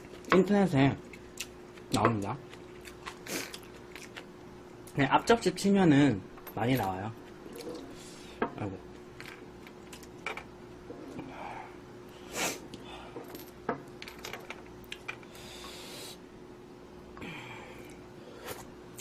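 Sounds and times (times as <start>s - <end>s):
slurping and chewing: 2.5s - 4.3s.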